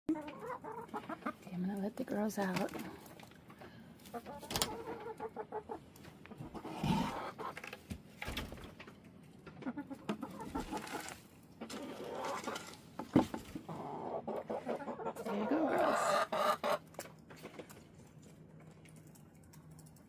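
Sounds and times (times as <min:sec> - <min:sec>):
hens clucking: 0:00.1 - 0:07.9, 0:09.4 - 0:16.9
knocks and thumps: 0:13.0 - 0:13.5.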